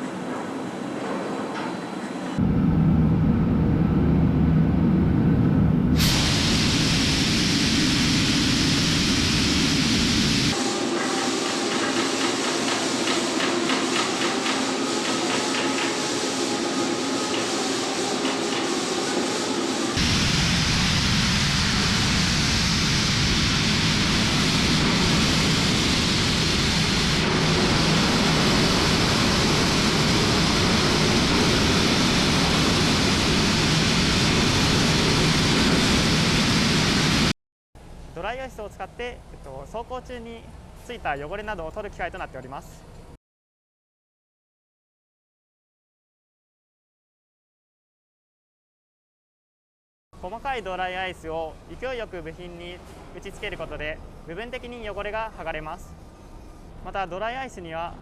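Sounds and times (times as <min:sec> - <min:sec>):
dry-ice blasting hiss: 0:06.0 - 0:37.3.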